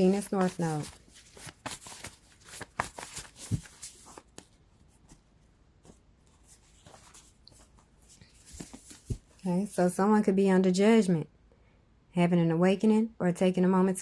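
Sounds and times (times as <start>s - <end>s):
cards shuffling: 0.0s - 5.2s, 5.8s - 9.3s.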